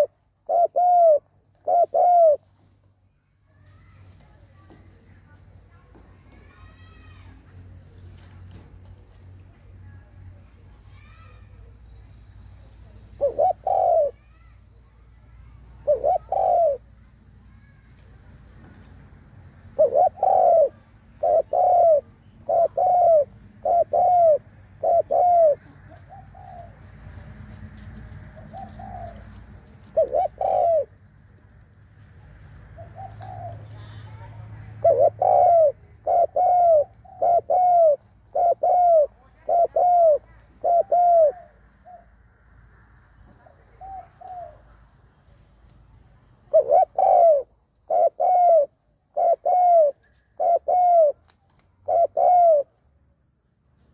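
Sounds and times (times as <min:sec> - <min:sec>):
dove cooing: 0:00.0 - 0:02.4, 0:13.2 - 0:14.2, 0:15.8 - 0:16.9, 0:19.7 - 0:26.8, 0:28.4 - 0:31.0, 0:32.8 - 0:42.0, 0:43.8 - 0:44.7, 0:46.5 - 0:51.2, 0:51.8 - 0:52.8.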